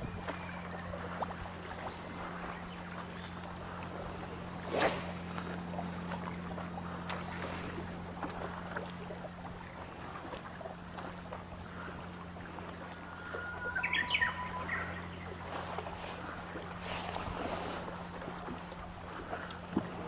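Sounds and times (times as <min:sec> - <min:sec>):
boat engine hum: 0:00.0 - 0:20.0
birds chirping: 0:13.0 - 0:19.0
bird call of several notes: 0:13.1 - 0:15.4.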